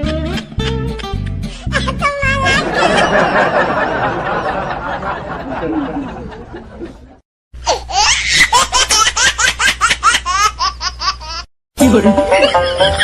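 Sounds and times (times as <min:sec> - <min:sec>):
music: 0:00.0 - 0:02.6, 0:11.8 - 0:13.0.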